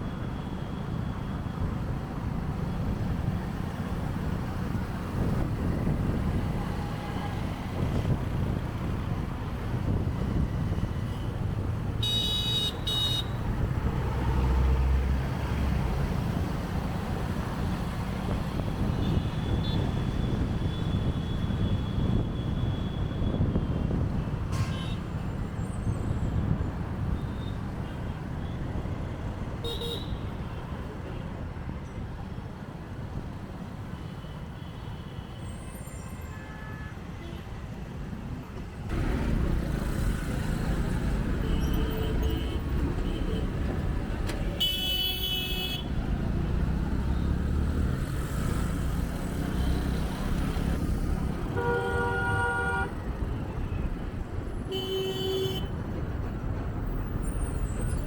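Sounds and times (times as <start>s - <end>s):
surrounding traffic: 0.0s - 58.0s
vehicle horn tooting: 51.5s - 53.1s, 54.7s - 55.7s.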